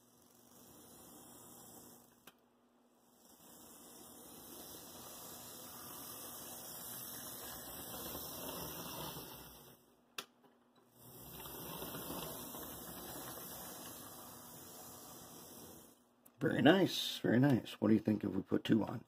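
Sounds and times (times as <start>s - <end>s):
model train motor whirring: 3.1s - 9.8s, 10.9s - 16.0s.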